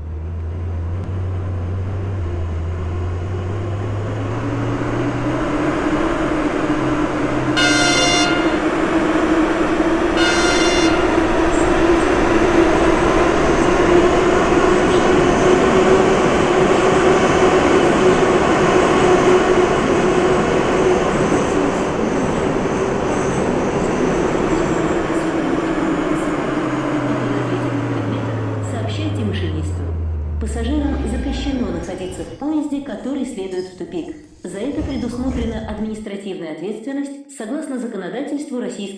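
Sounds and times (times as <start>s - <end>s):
subway train rumbling: 0.0s - 36.2s
short high tones: 10.2s - 11.2s.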